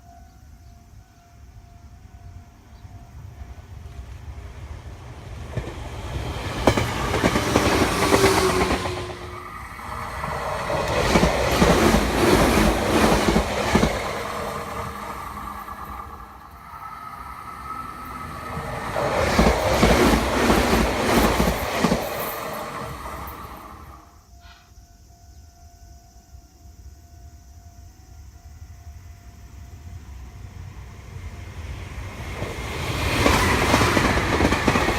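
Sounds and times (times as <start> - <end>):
electric train passing: 0.0 - 34.9
wheels clacking over rail joints: 5.0 - 23.6, 32.3 - 34.9.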